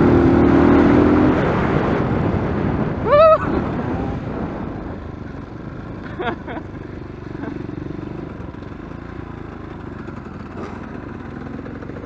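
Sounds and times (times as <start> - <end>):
dirt bike engine running: 3.6 - 12.0.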